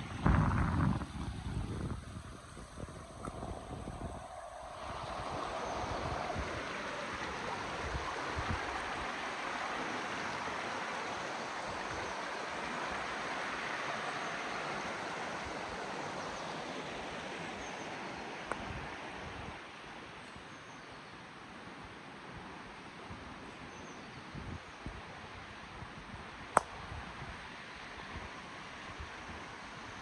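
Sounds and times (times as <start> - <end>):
river water rushing over stones: 2.8 - 20.2.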